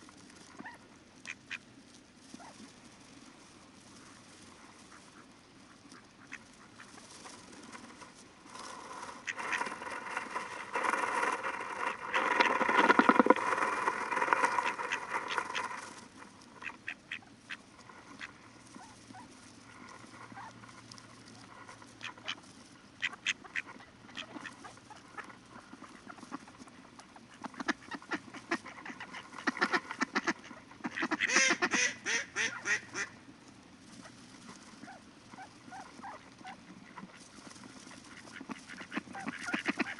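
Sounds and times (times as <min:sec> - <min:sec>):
ducks quacking: 0:04.0 - 0:07.0, 0:08.6 - 0:33.2, 0:34.0 - 0:39.9.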